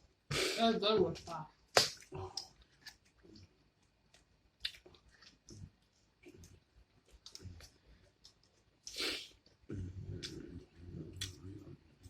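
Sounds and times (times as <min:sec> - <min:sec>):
chewing and mouth clicks: 0:01.8 - 0:11.7
hiss of breath: 0:08.9 - 0:09.3.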